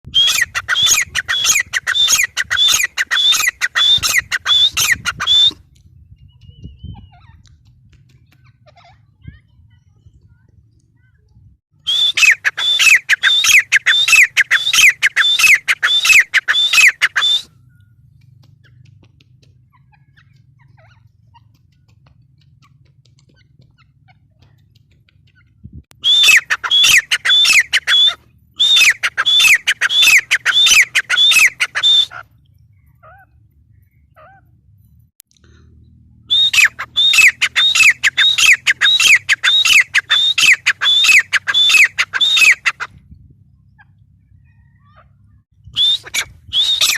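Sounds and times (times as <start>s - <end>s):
francolin calling: 0.1s - 5.6s, 11.9s - 18.0s, 26.0s - 32.2s, 36.3s - 42.9s.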